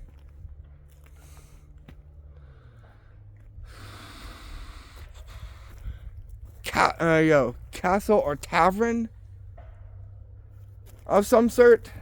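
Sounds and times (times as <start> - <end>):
low rumble: 0.0 - 12.0
person breathing: 1.1 - 6.3.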